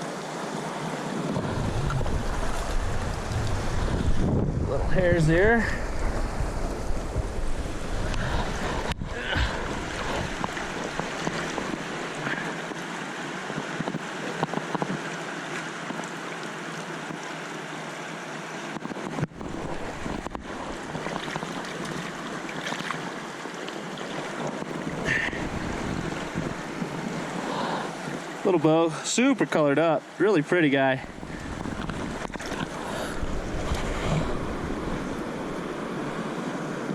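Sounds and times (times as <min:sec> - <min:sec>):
river current rushing: 0:00.0 - 0:36.9
wind buffeting microphone: 0:01.2 - 0:12.5, 0:18.8 - 0:22.9, 0:24.2 - 0:28.4, 0:31.0 - 0:36.9.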